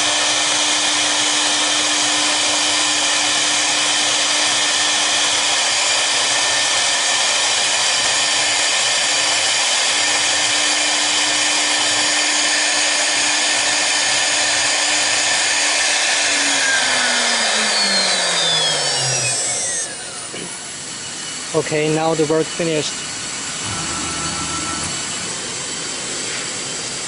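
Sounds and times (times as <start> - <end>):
router spindles whining: 0.0 - 21.5, 23.0 - 27.0.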